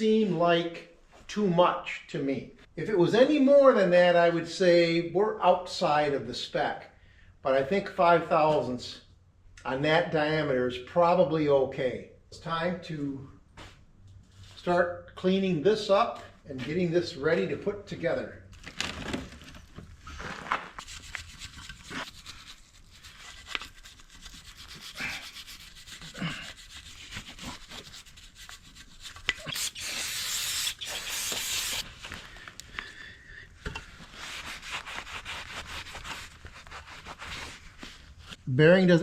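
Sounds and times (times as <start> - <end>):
rubbing and wiping parts: 20.2 - 32.2, 33.8 - 38.4
steady hiss: 29.4 - 31.9.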